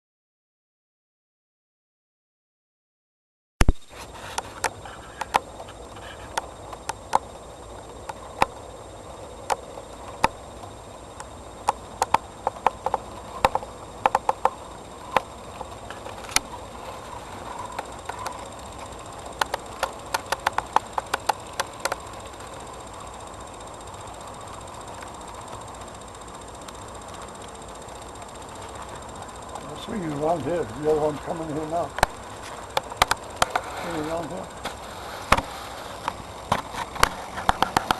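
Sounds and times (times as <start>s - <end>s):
model train motor whirring: 3.9s - 37.9s
wheels clicking over rail joints: 23.8s - 37.9s.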